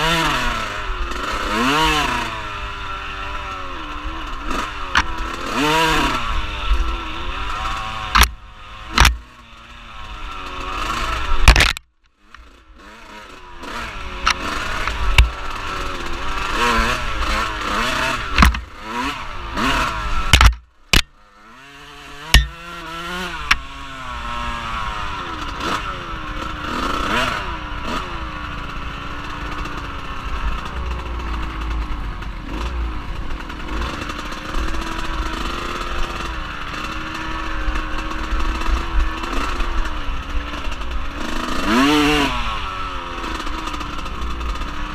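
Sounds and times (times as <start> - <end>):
off-road vehicle engine: 0.0 - 44.9
sharp knocks: 9.0 - 9.2, 18.4 - 18.7, 20.3 - 21.1, 22.2 - 22.8.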